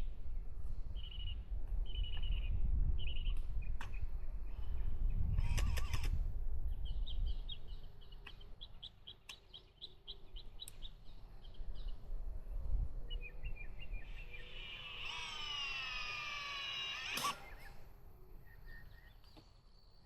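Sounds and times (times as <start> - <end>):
birds chirping: 6.6 - 20.0
bird call of falling tones: 13.9 - 17.8.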